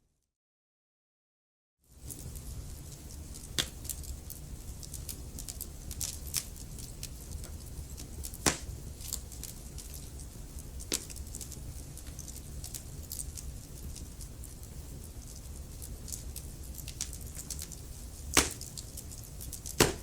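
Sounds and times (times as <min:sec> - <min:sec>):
wood fire crackling: 0:01.9 - 0:20.0
loud fire pops: 0:08.3 - 0:08.8, 0:18.3 - 0:18.9, 0:19.6 - 0:20.0.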